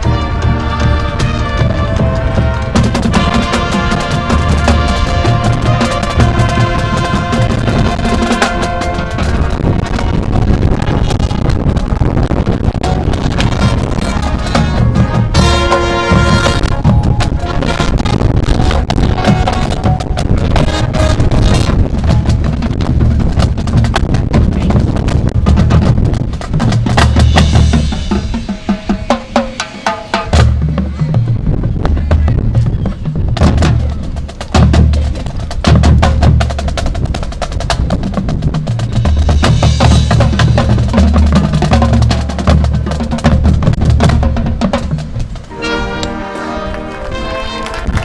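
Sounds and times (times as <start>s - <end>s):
held wind chord: 0.0s - 26.5s, 43.6s - 48.0s
low bass notes: 0.0s - 28.4s
snare and bass drums: 0.0s - 45.6s.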